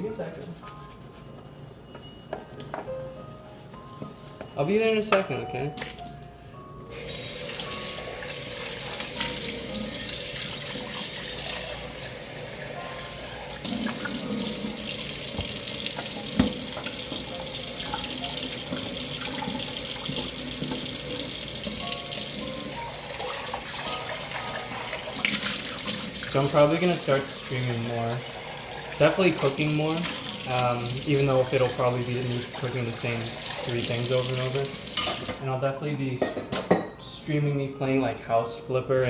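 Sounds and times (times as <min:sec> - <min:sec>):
tap running into sink: 0:07.0 - 0:12.2, 0:13.5 - 0:35.4
dish clinking: 0:33.5 - 0:35.4.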